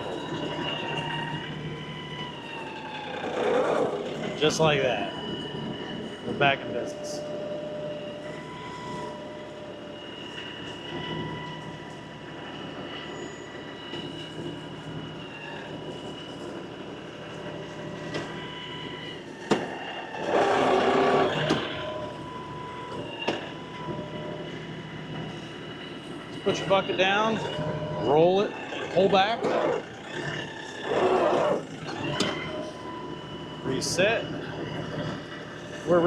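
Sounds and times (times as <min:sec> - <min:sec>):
loud pitched whine: 0:00.0 - 0:36.0
steady whining tones: 0:00.0 - 0:36.0
tractor engine running: 0:19.6 - 0:22.3.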